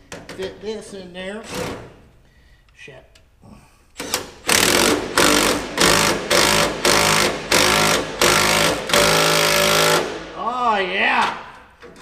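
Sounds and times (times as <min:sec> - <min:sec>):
impact wrench hammering bursts: 0:04.0 - 0:10.3.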